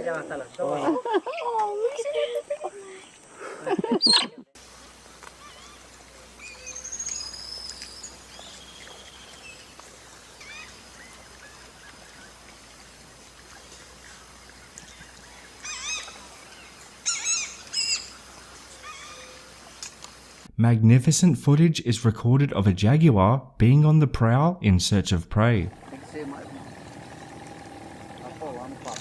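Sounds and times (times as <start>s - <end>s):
forest background hum: 0.0s - 20.5s, 25.6s - 29.0s
birds calling: 3.8s - 20.4s, 25.7s - 29.0s.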